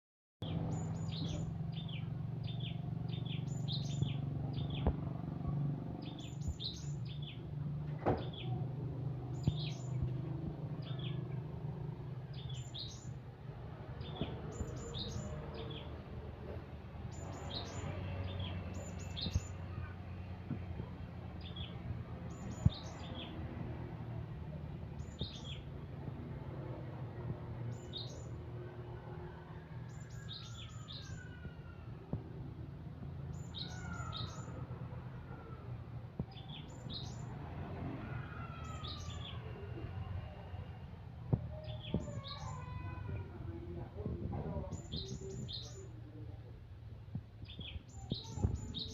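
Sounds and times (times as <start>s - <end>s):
bird chirping: 0.4s - 5.0s, 6.0s - 7.4s, 12.3s - 13.2s, 17.1s - 19.8s, 25.0s - 25.7s, 33.3s - 34.6s, 47.4s - 48.9s.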